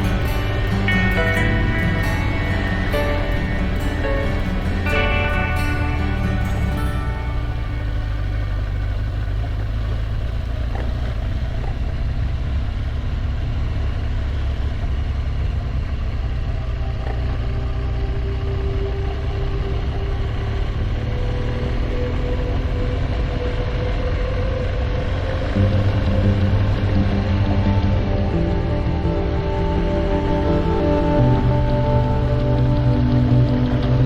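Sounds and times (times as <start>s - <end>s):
motorcycle engine rumbling: 0.0s - 34.0s.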